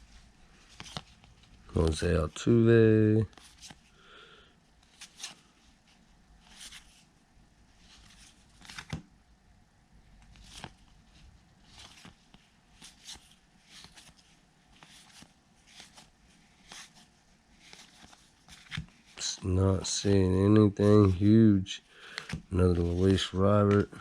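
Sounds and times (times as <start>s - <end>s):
cards sliding with soft swish: 4.8s - 7.1s, 10.2s - 21.5s, 22.1s - 24.0s.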